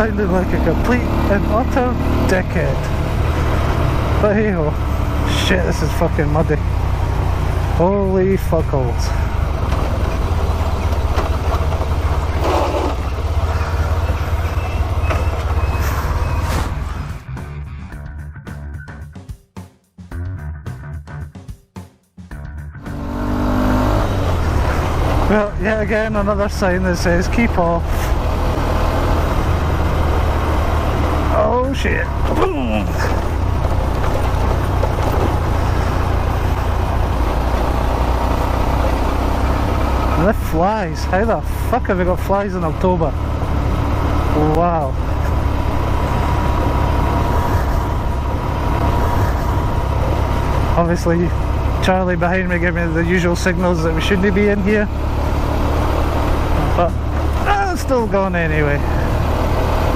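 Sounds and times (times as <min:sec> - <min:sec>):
motorbike engine rumbling: 0:00.0 - 0:18.7, 0:22.3 - 0:59.9
scattered knocks: 0:33.1 - 0:36.3.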